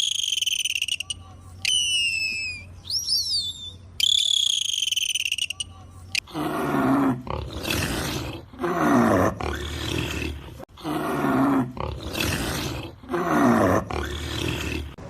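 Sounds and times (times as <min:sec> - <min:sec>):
large animal roaring: 0:06.3 - 0:15.0.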